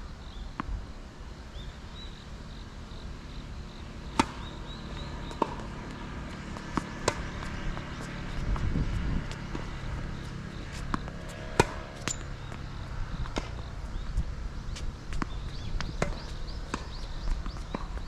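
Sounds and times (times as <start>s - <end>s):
tennis ball bounces: 4.0s - 18.0s
tennis racket hits: 5.2s - 8.7s, 10.7s - 12.3s
wind rumble on microphone: 7.2s - 18.0s.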